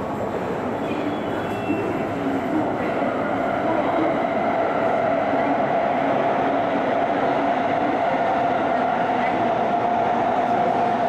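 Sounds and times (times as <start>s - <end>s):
train wheels rushing on rail: 0.0s - 11.0s.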